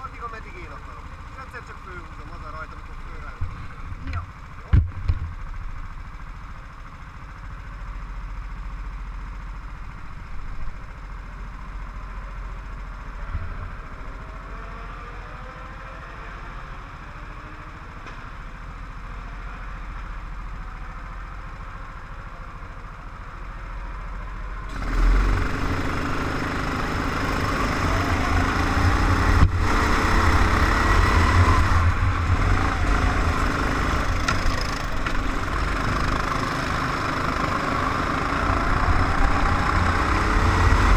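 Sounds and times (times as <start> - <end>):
faint go-kart engines: 0.0 - 40.9
go-kart engine starting: 24.6 - 40.9.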